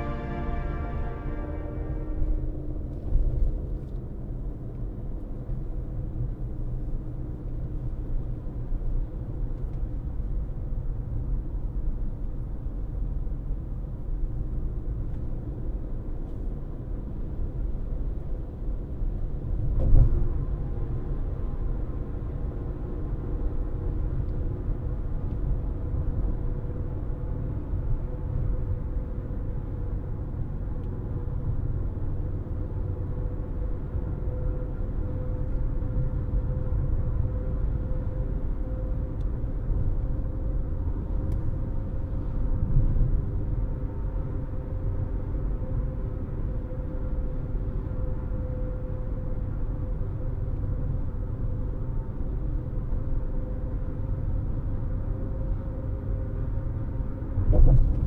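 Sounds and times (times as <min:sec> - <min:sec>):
car road and engine rumble: 0:00.0 - 0:58.0
steady hum: 0:57.4 - 0:58.0.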